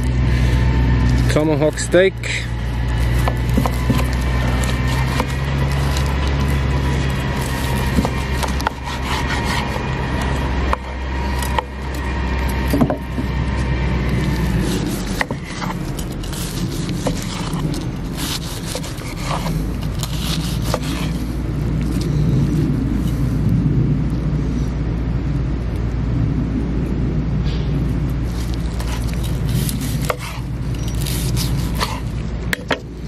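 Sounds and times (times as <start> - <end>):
low rumble: 0.0 - 33.0
knife sawing through steak: 2.5 - 11.6, 14.3 - 21.2, 28.8 - 32.1.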